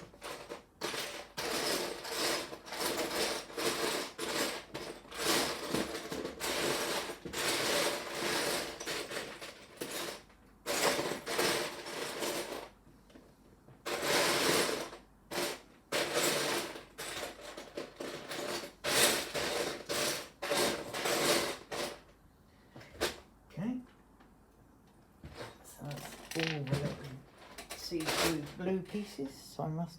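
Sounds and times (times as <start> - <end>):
plastic bricks rattling: 25.9 - 28.6.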